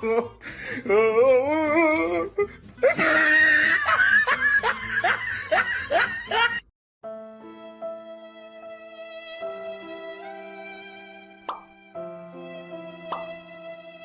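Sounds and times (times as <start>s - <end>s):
soft music: 0.0s - 14.0s
person laughing hard: 2.8s - 6.6s.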